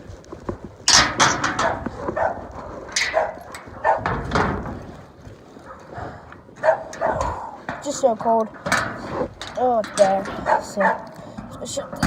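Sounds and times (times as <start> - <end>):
dog barking: 1.6 - 4.2, 6.6 - 7.5, 10.4 - 11.7.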